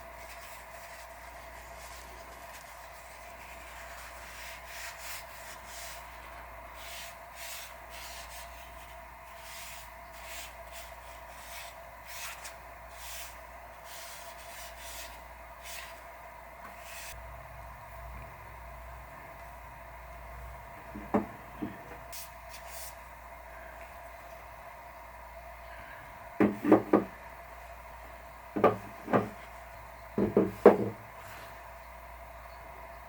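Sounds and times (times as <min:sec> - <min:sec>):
electrical hum: 0:00.0 - 0:33.0
hand sanding with sandpaper: 0:00.1 - 0:16.0.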